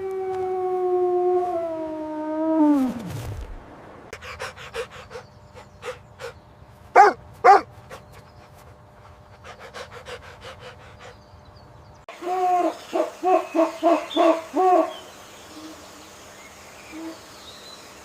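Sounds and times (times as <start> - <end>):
dog panting: 4.2 - 6.4, 7.0 - 11.3
dog barking: 7.0 - 7.7.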